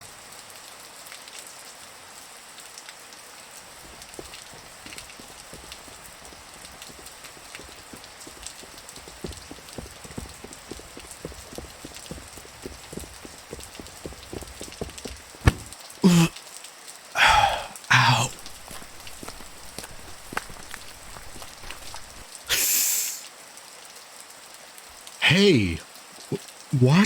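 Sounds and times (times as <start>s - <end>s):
steady rain: 0.0s - 27.0s
footsteps: 3.6s - 16.3s, 17.2s - 22.4s.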